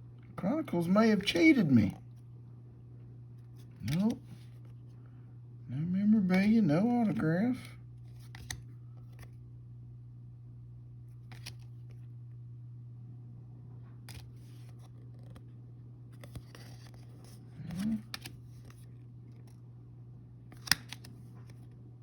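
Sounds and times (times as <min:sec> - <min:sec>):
steady low hum: 0:00.0 - 0:22.0
cards sliding and rustling: 0:03.4 - 0:04.8, 0:08.0 - 0:09.4, 0:11.1 - 0:12.0, 0:14.0 - 0:15.4, 0:16.1 - 0:19.6, 0:20.5 - 0:21.8.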